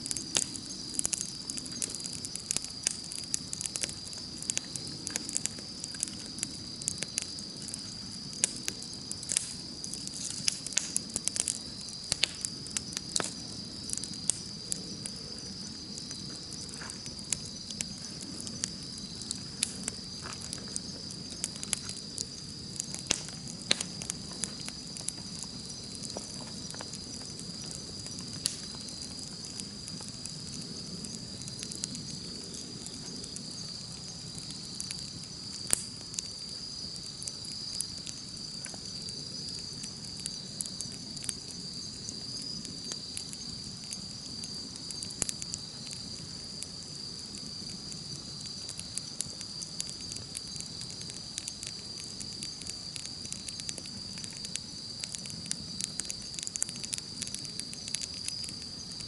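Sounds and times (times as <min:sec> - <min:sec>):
campfire crackling and popping: 0:00.0 - 0:59.0
high-pitched insect trill: 0:00.0 - 0:59.0.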